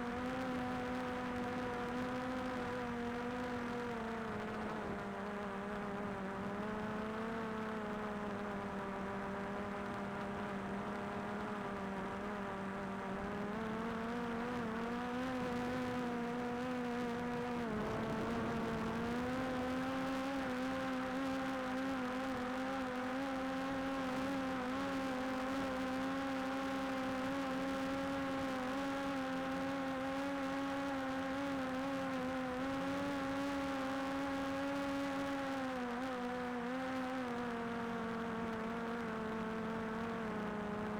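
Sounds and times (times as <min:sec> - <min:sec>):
drone propellers whining: 0:17.7 - 0:20.2.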